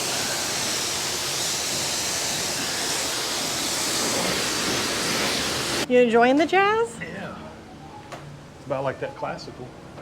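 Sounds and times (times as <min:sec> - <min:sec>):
high-pressure water spray hissing: 0:00.0 - 0:05.8.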